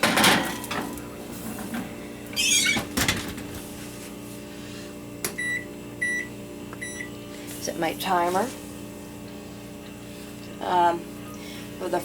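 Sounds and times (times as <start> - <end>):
kitchen clatter and clunks: 0.0 - 2.0, 2.8 - 3.6.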